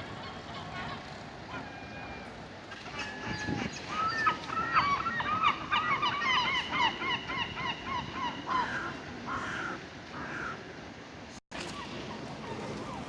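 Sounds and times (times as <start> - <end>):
flock of water birds calling: 0.0 - 13.0.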